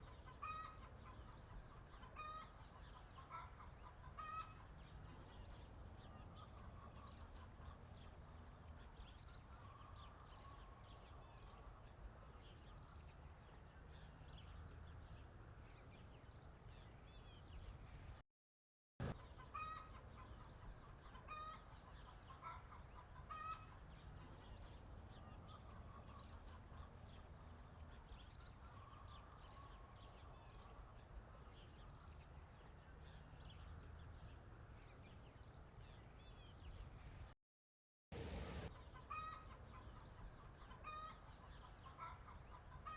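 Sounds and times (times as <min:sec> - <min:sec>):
chickens clucking: 0:00.1 - 0:05.6, 0:19.0 - 0:28.0, 0:38.7 - 0:42.9.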